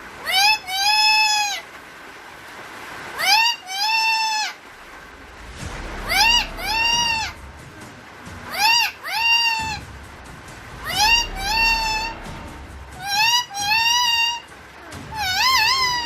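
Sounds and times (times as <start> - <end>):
parrot calling: 6.0 - 7.4, 8.5 - 9.9, 10.8 - 16.0.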